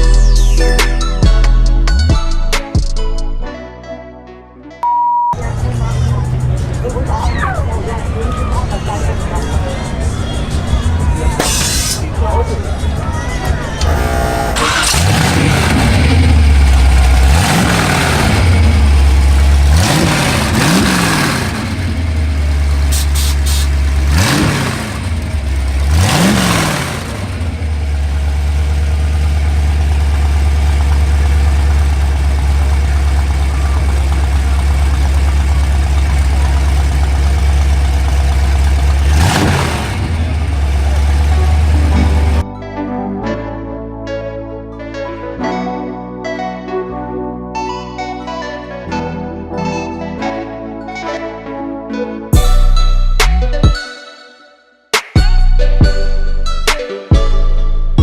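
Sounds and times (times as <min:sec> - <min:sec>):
car engine idling and revving: 0:05.4 - 0:42.5.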